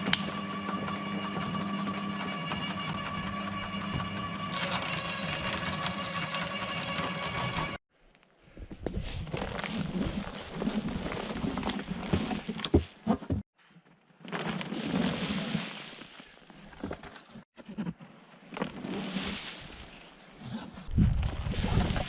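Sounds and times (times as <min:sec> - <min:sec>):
branches rustling and scraping: 0:02.6 - 0:22.0.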